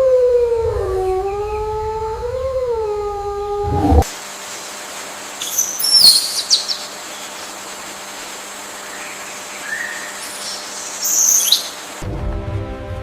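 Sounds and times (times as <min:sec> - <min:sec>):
steady background hiss: 0:00.0 - 0:12.0
birds chirping: 0:05.3 - 0:12.0.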